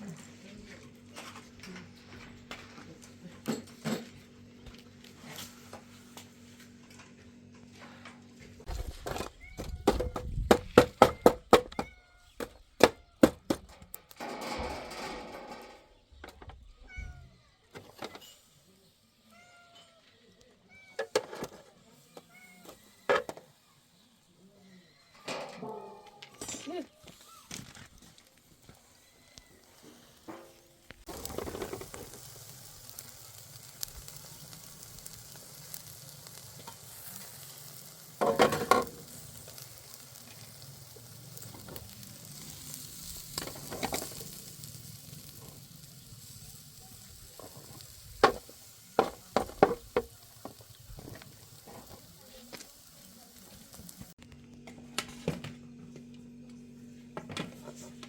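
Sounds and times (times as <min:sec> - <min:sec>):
food sizzling in a pan: 0:28.6 - 0:54.2.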